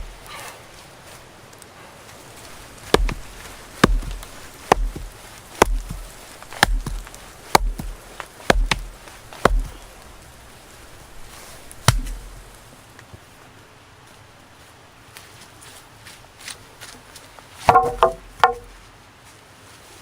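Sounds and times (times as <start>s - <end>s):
axe chopping wood: 0.0s - 0.3s, 2.8s - 10.2s, 11.8s - 12.6s, 17.7s - 18.8s.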